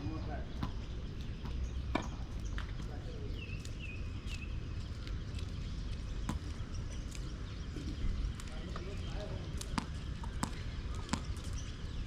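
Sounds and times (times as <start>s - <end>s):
tennis balls struck and bouncing: 0.5s - 2.7s, 6.2s - 6.7s, 8.7s - 11.6s.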